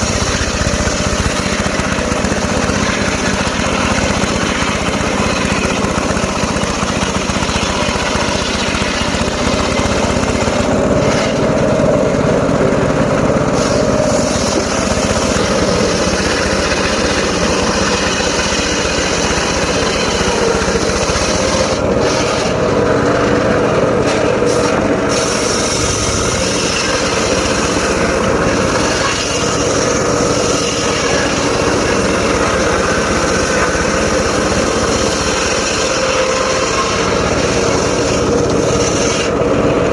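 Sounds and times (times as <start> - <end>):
engine-driven circular saw running: 0.0 - 39.9.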